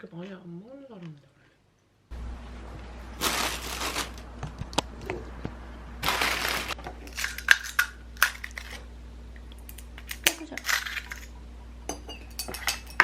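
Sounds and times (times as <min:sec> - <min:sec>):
crinkling and rustling: 0:02.8 - 0:05.2, 0:06.0 - 0:07.3.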